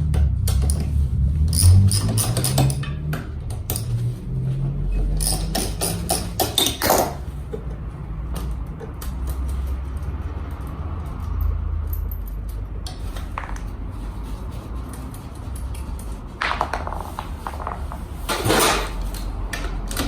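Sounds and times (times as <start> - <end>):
metal tools clinking: 1.5 - 3.0, 5.1 - 7.3.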